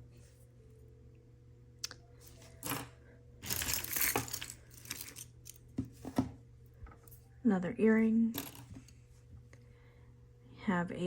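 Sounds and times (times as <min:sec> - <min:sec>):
jewelry clicking and clattering: 0:02.5 - 0:05.9, 0:08.3 - 0:08.9.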